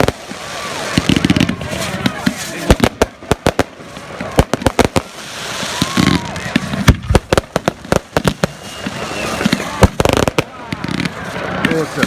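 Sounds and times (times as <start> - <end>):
fireworks bangs: 0.0 - 12.0
hissing crackle: 0.0 - 12.0.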